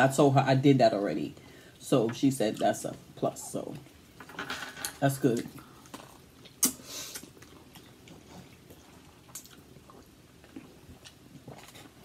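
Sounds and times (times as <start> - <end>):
person chewing pasta: 5.4 - 12.0.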